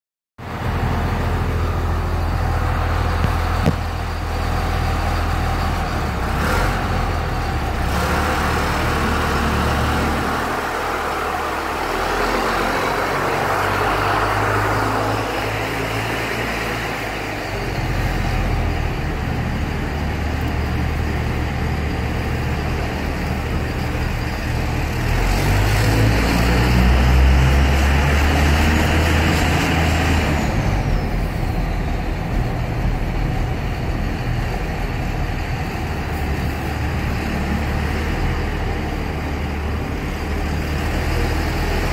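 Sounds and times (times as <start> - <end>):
diesel engine exhaust drone: 0.4 - 41.9.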